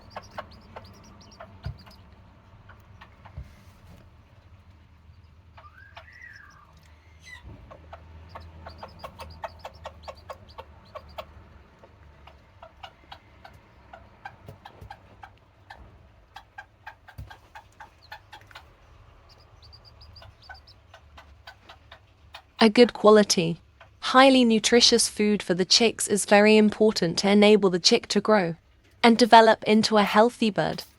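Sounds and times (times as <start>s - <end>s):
hen clucking: 0.0s - 24.0s.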